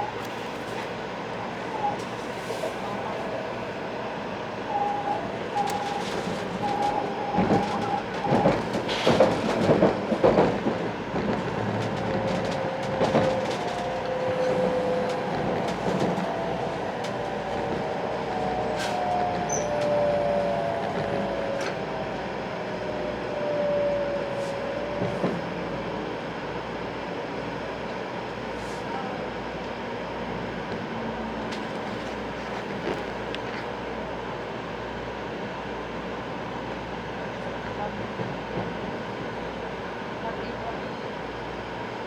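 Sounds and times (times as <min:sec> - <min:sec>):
train running noise: 0:00.0 - 0:42.0
whining train motor: 0:11.6 - 0:26.6.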